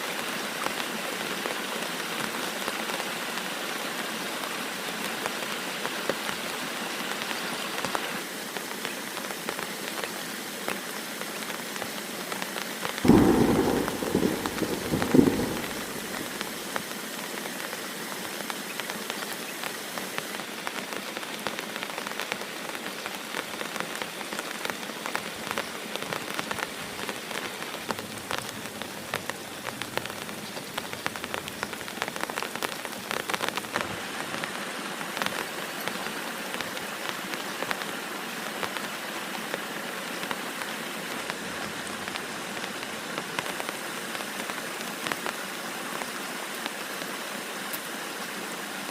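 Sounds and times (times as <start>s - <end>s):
heavy rain pattering: 0.0s - 48.9s
loud low burst: 13.1s - 16.6s.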